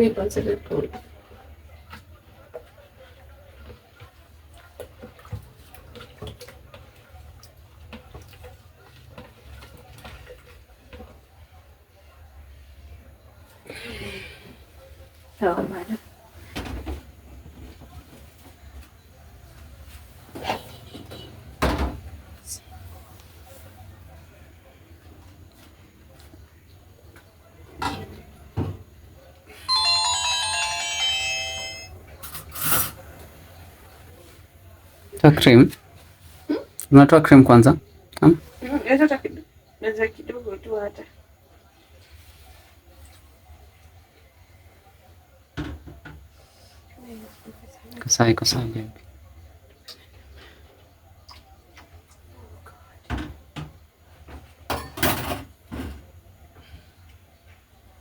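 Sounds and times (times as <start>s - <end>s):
electronic chime melody: 29.7s - 31.9s.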